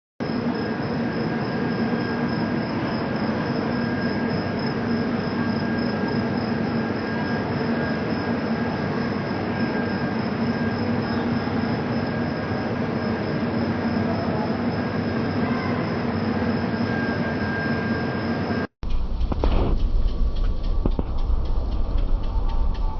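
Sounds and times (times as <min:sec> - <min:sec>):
thin steady whine: 0:00.2 - 0:22.9
train wheels rumbling on track: 0:18.8 - 0:22.9.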